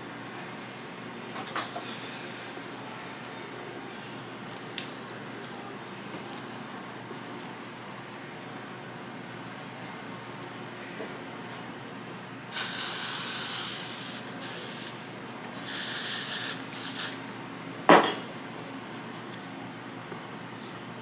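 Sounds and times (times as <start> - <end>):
hair spray hissing: 12.5 - 15.0, 15.6 - 17.2.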